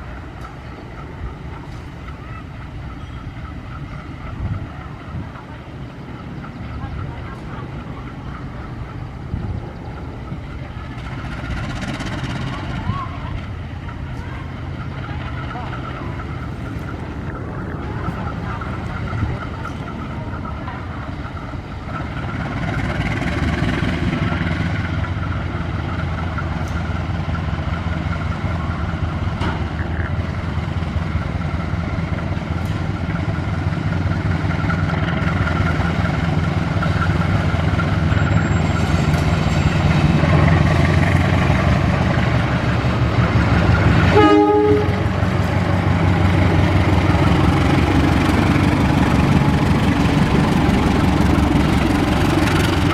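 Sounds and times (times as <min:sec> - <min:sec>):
diesel locomotive engine running: 0:00.0 - 0:52.9
locomotive horn blast: 0:44.0 - 0:45.2.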